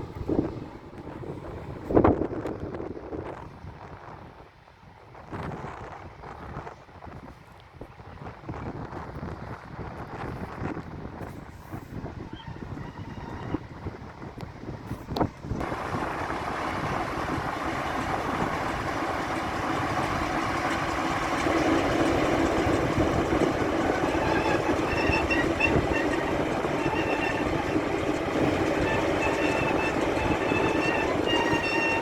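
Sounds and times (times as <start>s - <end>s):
locomotive engine rumbling: 0.0s - 2.0s, 15.4s - 32.0s
faint high squeals: 12.3s - 13.6s, 23.7s - 27.8s, 28.6s - 32.0s.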